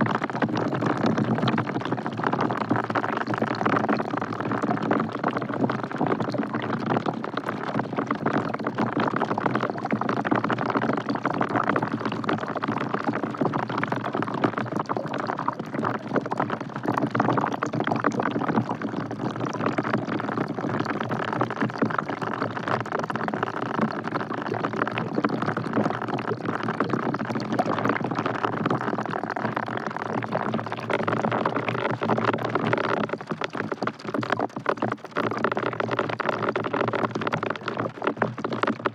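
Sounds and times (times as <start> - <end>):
rain falling into a bucket: 0.0 - 38.9.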